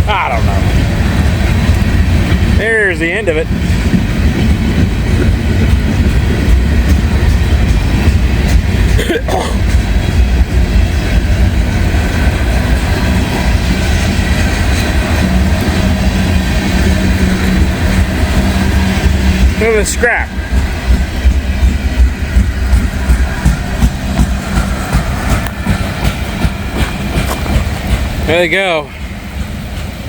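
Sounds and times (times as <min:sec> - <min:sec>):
freight train rolling past: 0:00.0 - 0:30.0.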